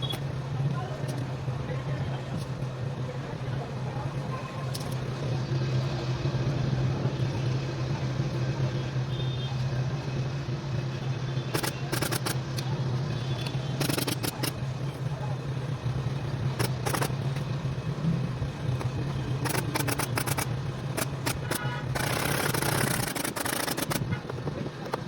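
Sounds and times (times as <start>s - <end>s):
sharp clicks: 11.5s - 12.7s, 13.4s - 14.6s, 16.5s - 17.5s, 18.7s - 25.0s.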